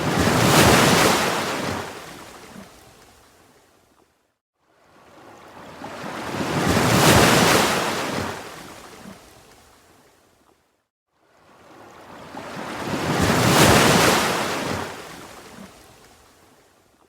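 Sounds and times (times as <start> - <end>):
ocean wave breaking: 0.0 - 2.7, 5.6 - 9.1, 12.1 - 15.4.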